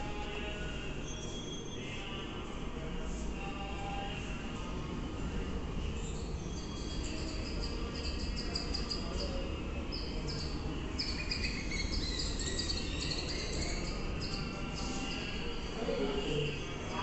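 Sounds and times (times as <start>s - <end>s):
small birds chirping: 5.9s - 15.5s.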